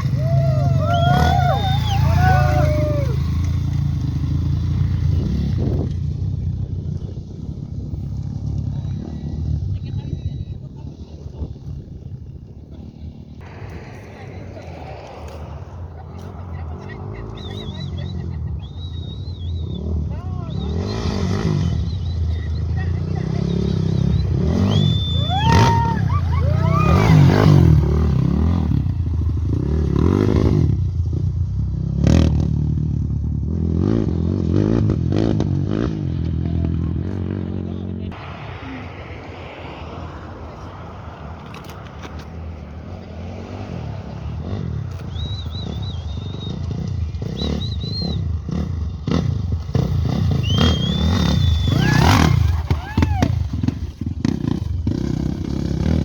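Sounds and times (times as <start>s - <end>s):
rising-and-falling whistles: 0.0s - 3.4s, 13.4s - 27.9s, 38.2s - 48.7s, 50.0s - 53.3s
motorcycle engine running: 0.0s - 14.0s, 14.6s - 38.8s, 40.7s - 56.0s.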